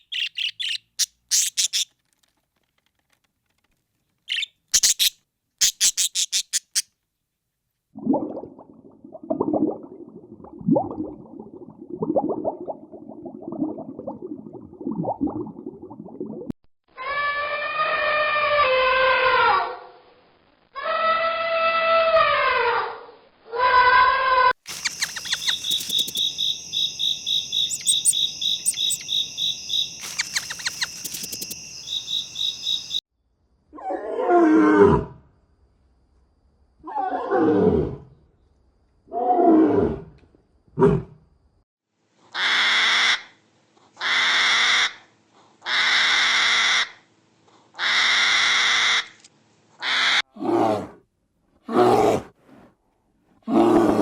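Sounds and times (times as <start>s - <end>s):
rough hissing bursts: 24.7s - 26.2s, 30.0s - 31.5s
high pulsing animal trill: 24.7s - 33.0s
deep roar-like animal calls: 50.3s - 51.0s, 53.5s - 54.0s.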